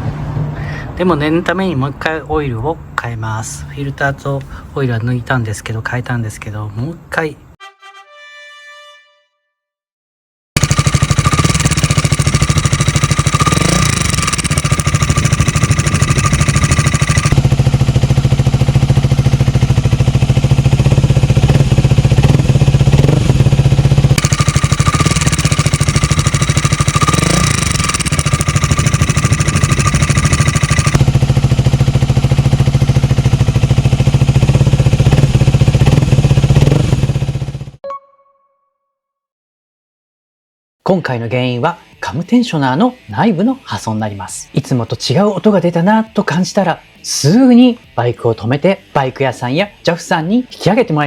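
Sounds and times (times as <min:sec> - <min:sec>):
engine throttle blips: 0:10.6 - 0:37.8
motorcycle engine idling: 0:10.6 - 0:37.8.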